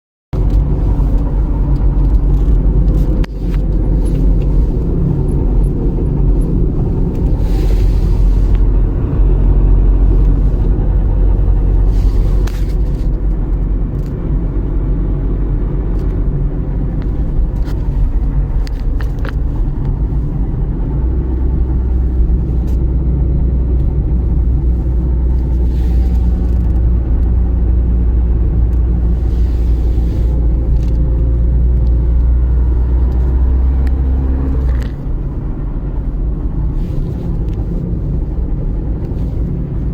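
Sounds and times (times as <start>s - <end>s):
diesel engine rumbling: 0.3s - 39.9s.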